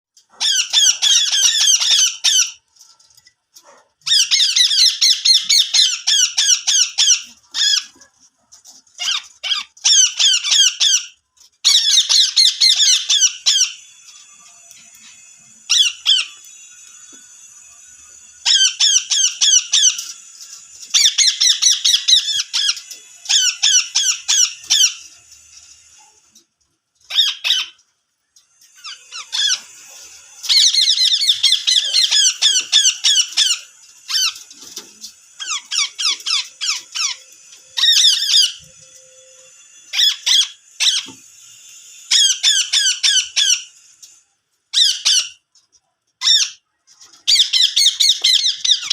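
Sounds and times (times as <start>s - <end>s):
parakeet shrill calls: 0.3s - 2.6s, 4.1s - 7.9s, 9.0s - 25.2s, 27.1s - 27.8s, 28.7s - 34.5s, 35.2s - 41.2s, 42.0s - 43.8s, 44.7s - 45.4s, 46.2s - 46.6s, 47.3s - 48.9s.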